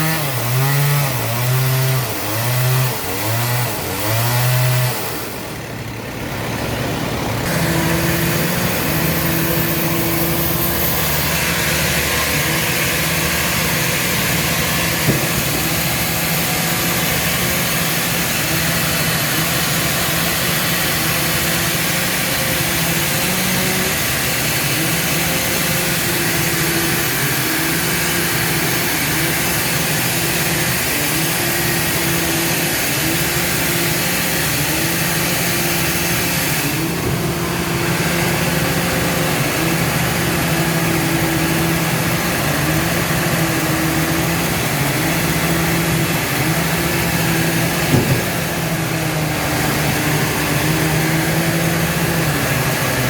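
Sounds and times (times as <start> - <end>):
sawmill machinery hiss: 7.5 - 53.0
short knock: 47.9 - 48.5.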